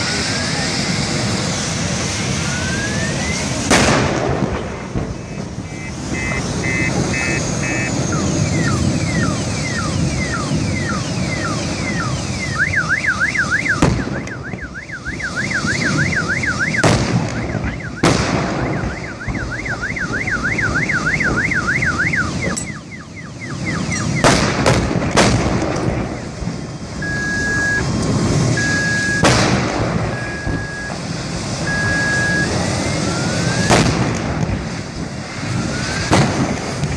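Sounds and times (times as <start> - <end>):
low rumble of traffic: 0.0 - 36.9
reversing beeper: 2.3 - 3.6, 5.0 - 24.3, 27.0 - 29.3, 30.0 - 31.0, 31.6 - 33.7
car alarm wailing: 2.4 - 3.5, 5.1 - 24.3, 27.0 - 29.3, 30.0 - 31.0, 31.6 - 33.7
sharp explosion bangs: 3.4 - 12.4, 13.4 - 21.3, 23.8 - 26.6, 27.4 - 32.7, 33.5 - 36.9.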